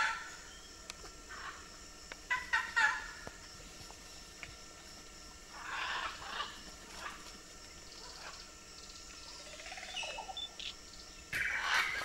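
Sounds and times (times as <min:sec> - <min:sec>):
loud harsh bird squawk: 0:11.4 - 0:12.0.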